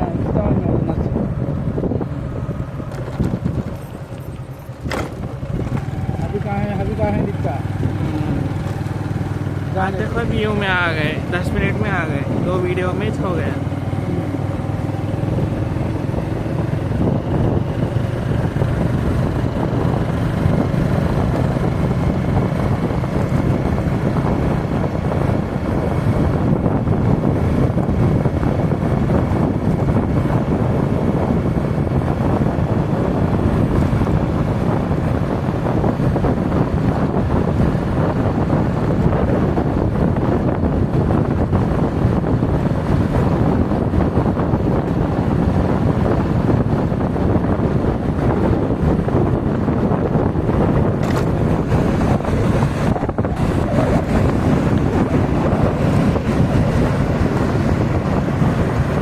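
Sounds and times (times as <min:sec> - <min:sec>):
motorcycle engine running: 0:00.0 - 0:59.0
wind rushing on microphone: 0:00.0 - 0:59.0.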